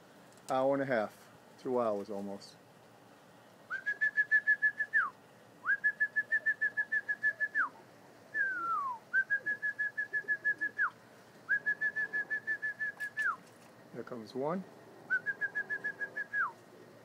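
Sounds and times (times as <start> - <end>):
person whistling warbling call: 3.7 - 7.7, 8.4 - 10.9, 11.5 - 13.4, 15.1 - 16.6.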